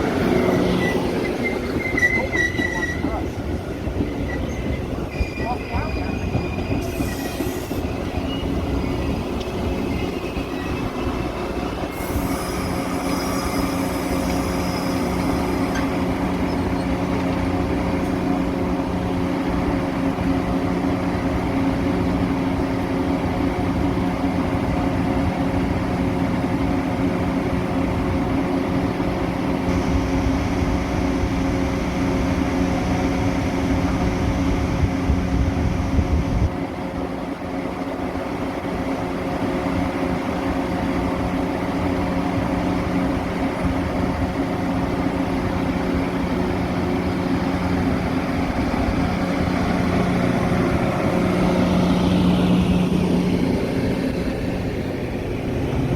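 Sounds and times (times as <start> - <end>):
train rumbling: 0.0 - 55.9
high wheel squeals: 0.4 - 3.2, 4.1 - 17.0.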